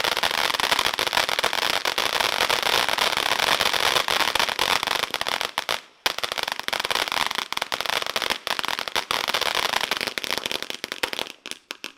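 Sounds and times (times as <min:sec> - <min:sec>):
firework fountain crackling: 0:00.0 - 0:11.9.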